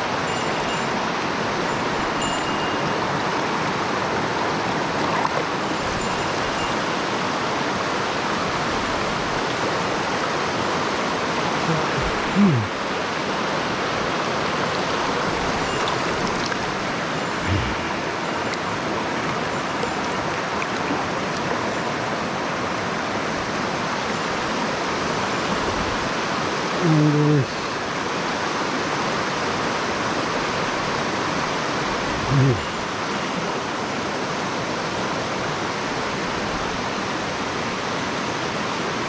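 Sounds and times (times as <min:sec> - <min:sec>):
mountain stream rushing over rocks: 0:00.0 - 0:39.0
low voice-like murmurs: 0:11.6 - 0:12.8, 0:17.4 - 0:17.9, 0:26.8 - 0:27.6, 0:32.2 - 0:32.7.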